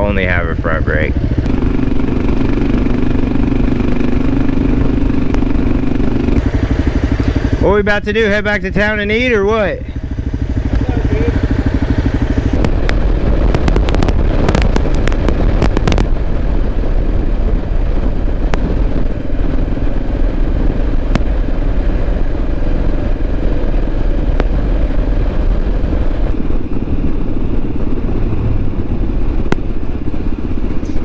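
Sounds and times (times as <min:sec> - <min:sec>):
motorcycle engine running: 0:00.0 - 0:31.0
sharp clicks: 0:12.3 - 0:16.1.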